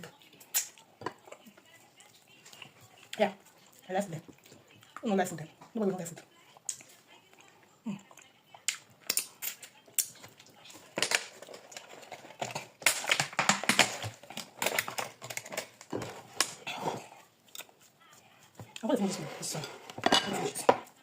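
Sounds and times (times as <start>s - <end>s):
mouth clicks and smacks eating: 5.6s - 10.8s, 12.4s - 18.8s.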